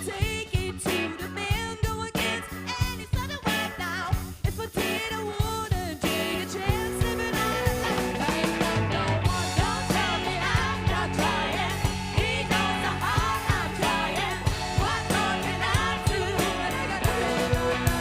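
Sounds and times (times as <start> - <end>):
bass: 0.0 - 18.0
funk band playing: 0.0 - 18.0
steady drum beat: 4.2 - 18.0.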